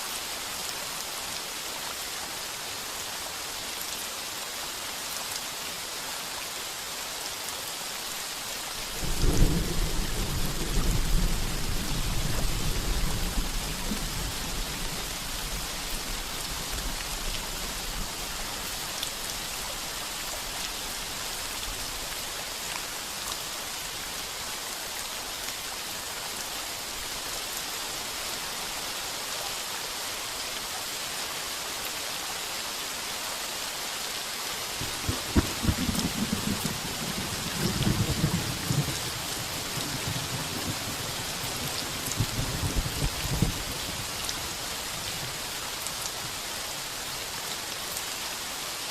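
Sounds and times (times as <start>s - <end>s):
heavy rain on a tin roof: 0.0s - 48.9s
thunder rumbling: 9.0s - 15.0s, 34.8s - 39.0s.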